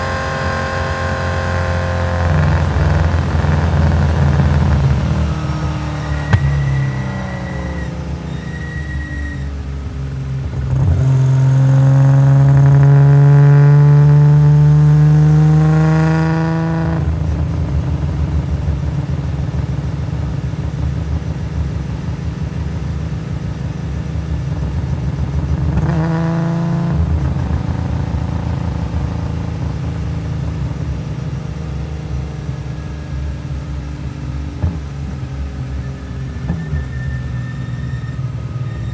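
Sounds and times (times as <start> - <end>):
race car engine revving: 0.0 - 9.0.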